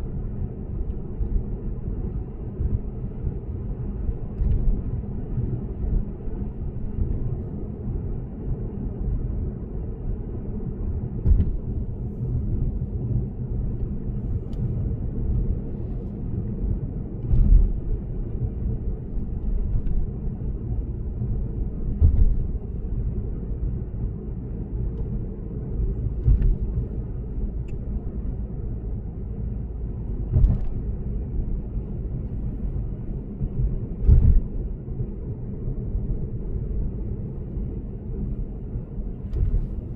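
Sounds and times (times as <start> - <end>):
road and tyre rumble: 0.0 - 39.9
short thump: 11.2 - 11.6, 17.3 - 17.8, 21.9 - 22.6, 30.3 - 30.8, 34.0 - 34.5.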